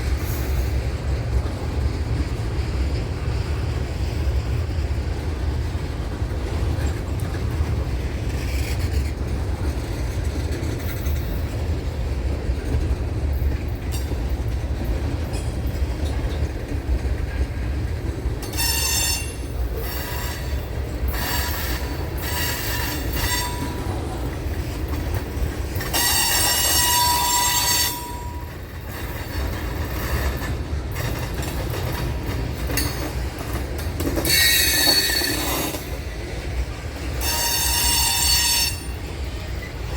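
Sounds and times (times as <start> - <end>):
train rolling past: 0.0 - 39.9
train wheels squealing: 8.3 - 9.2, 18.4 - 24.3, 25.8 - 36.1, 37.0 - 39.9.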